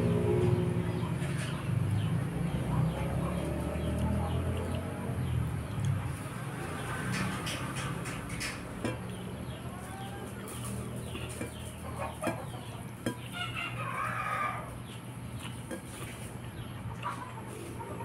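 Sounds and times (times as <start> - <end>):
soft eating clicks: 3.8 - 6.1.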